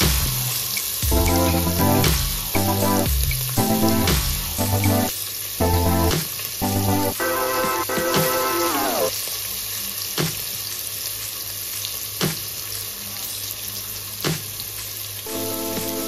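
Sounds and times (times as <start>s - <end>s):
onions sizzling in hot oil: 0.4s - 1.0s, 5.1s - 6.6s, 9.1s - 16.0s.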